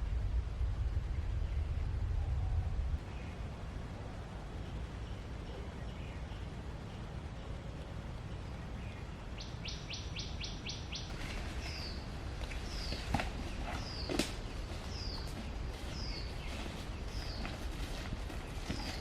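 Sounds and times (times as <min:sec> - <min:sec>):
low rumble: 0:00.0 - 0:04.5
songbird trill: 0:00.8 - 0:19.0.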